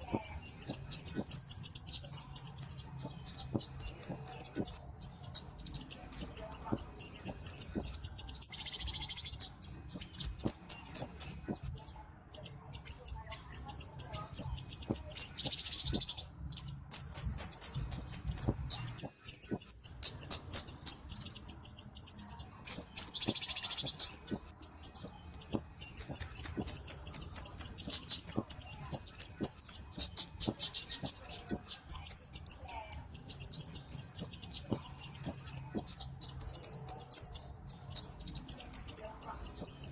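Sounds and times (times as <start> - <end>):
bird singing high ticking notes: 0.0 - 39.9
buzzy bird phrases: 0.0 - 39.9.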